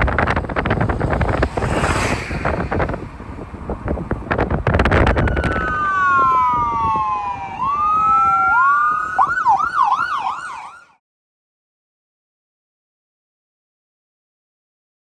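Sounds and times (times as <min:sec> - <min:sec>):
emergency siren wailing and yelping: 0:04.8 - 0:11.0.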